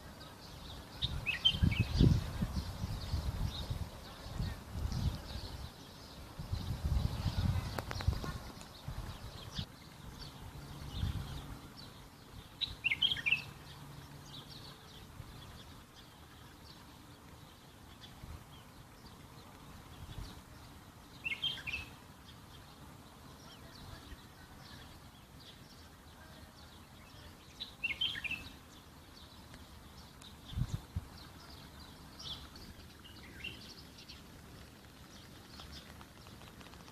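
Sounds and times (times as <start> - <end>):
faint chirps of other birds: 0.0 - 36.9
bird chirping bursts: 0.2 - 17.1, 20.0 - 36.7.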